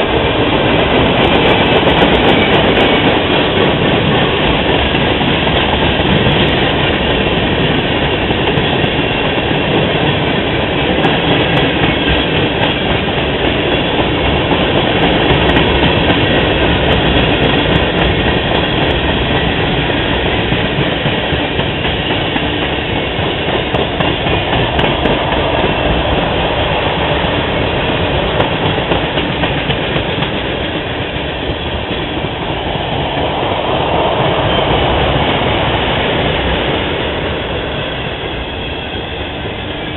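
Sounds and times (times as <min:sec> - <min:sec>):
train rolling past: 0:00.0 - 0:39.9.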